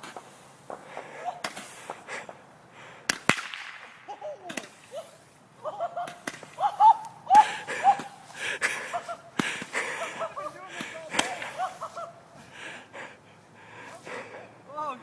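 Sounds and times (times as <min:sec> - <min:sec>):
fireworks pops and cracks: 0:00.0 - 0:05.1, 0:06.0 - 0:07.2, 0:09.3 - 0:09.8, 0:10.7 - 0:11.9
people shouting and whooping: 0:04.1 - 0:12.4.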